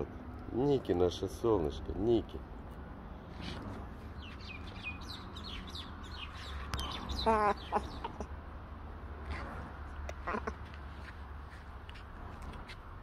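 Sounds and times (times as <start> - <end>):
birds chirping: 3.1 - 8.4.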